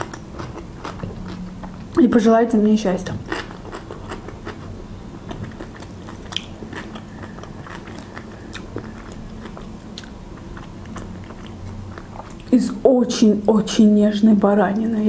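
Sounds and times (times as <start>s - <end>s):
close-up chewing: 0.0s - 2.0s, 3.1s - 12.5s.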